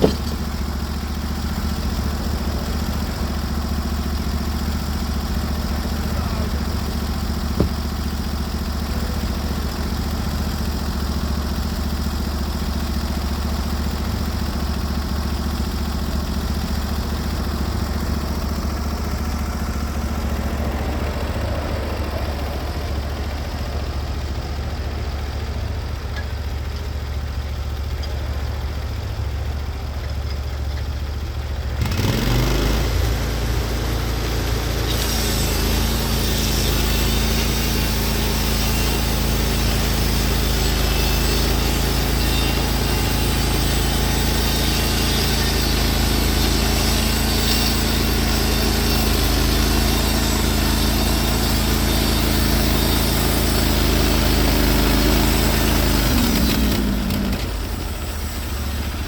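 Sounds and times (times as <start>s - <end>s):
sawmill engine running: 0.0s - 59.0s
engine revving: 31.8s - 59.0s.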